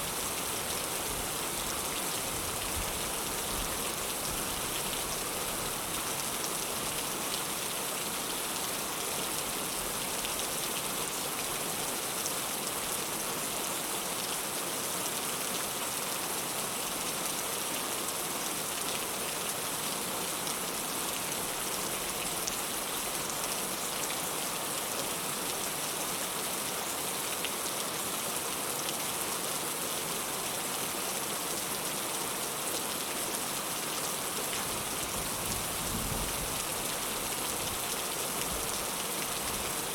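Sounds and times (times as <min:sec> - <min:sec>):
heavy rain falling: 0:30.4 - 0:39.9.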